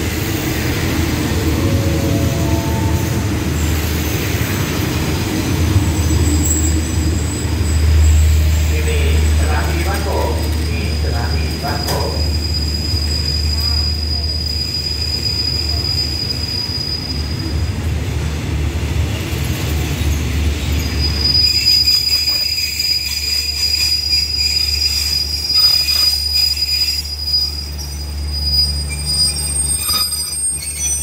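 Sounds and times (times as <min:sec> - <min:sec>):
train coaches rumbling: 0:00.0 - 0:31.0
brake squeal: 0:06.2 - 0:17.6, 0:20.8 - 0:31.0.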